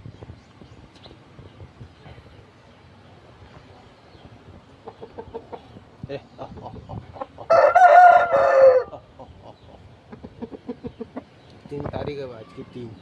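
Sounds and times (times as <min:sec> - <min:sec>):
rooster crowing: 0:07.5 - 0:09.0.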